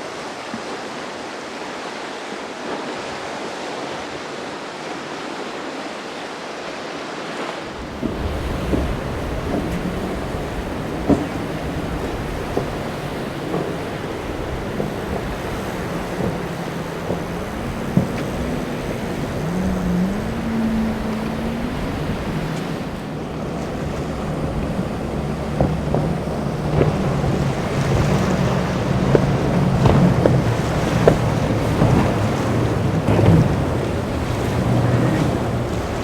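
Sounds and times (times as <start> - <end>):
surf rushing: 0.0 - 36.0
wind on microphone: 7.7 - 36.0
boat engine running: 7.8 - 36.0
sharp knocks: 25.6 - 33.8.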